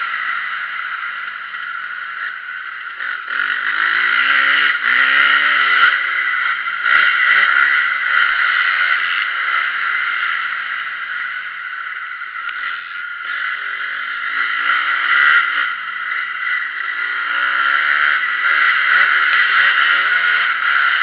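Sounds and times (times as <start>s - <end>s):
motocross bike engine revving: 0.0s - 21.0s.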